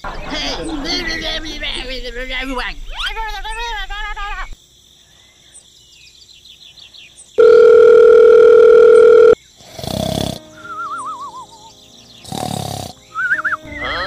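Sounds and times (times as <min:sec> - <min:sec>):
electronic beep: 0:07.4 - 0:09.4
cartoon snore sound effect: 0:09.6 - 0:10.5, 0:12.3 - 0:13.0.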